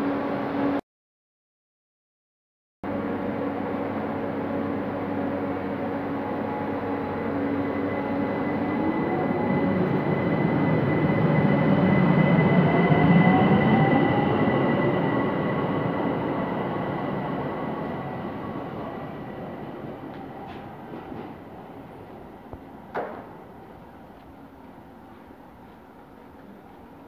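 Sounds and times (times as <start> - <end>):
train running noise: 2.9 - 27.0.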